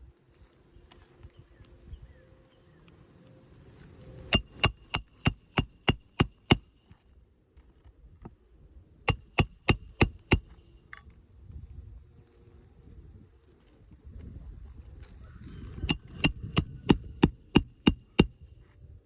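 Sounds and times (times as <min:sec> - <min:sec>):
hammer striking metal: 0:04.3 - 0:06.7, 0:09.1 - 0:11.0, 0:15.9 - 0:18.4.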